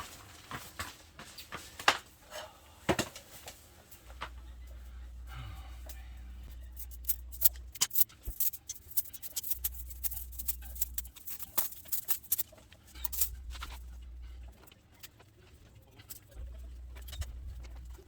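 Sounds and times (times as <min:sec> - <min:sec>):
low hum: 0:04.1 - 0:18.0.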